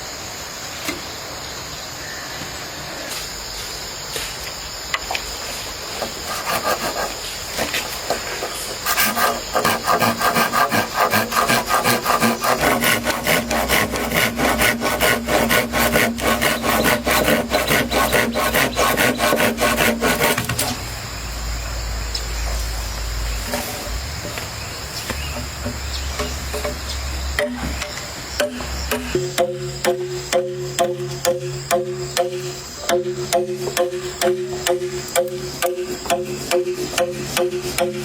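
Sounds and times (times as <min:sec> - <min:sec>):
fast scraping strokes: 0:05.9 - 0:20.8.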